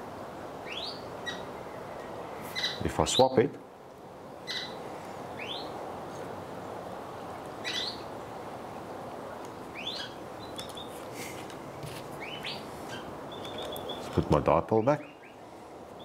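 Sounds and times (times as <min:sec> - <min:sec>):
steady background hiss: 0:00.0 - 0:16.0
bird chirping: 0:00.6 - 0:03.4, 0:04.4 - 0:05.8, 0:07.6 - 0:08.1, 0:09.7 - 0:11.0, 0:12.2 - 0:16.0.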